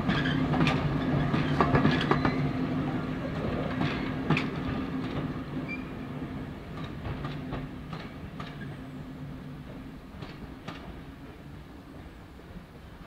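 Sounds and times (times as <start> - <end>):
train wheels clicking over rail joints: 0.0 - 2.6, 3.4 - 5.9, 6.7 - 8.7, 9.7 - 11.1.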